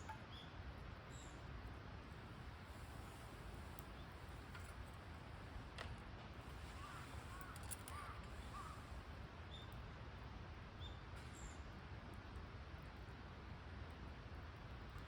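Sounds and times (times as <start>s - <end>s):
low background noise: 0.0s - 15.0s
bird calls: 6.6s - 8.9s.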